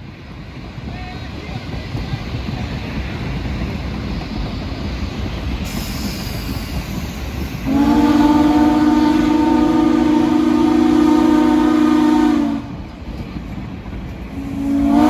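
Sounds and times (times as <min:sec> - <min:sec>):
train wheels rumbling on rails: 0:00.0 - 0:15.0
train horn chord: 0:07.7 - 0:12.7, 0:14.4 - 0:15.0.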